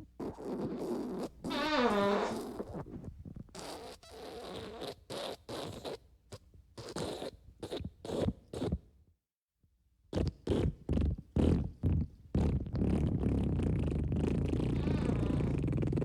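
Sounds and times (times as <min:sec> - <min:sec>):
fart sound effects: 0:00.2 - 0:02.8, 0:11.4 - 0:16.0.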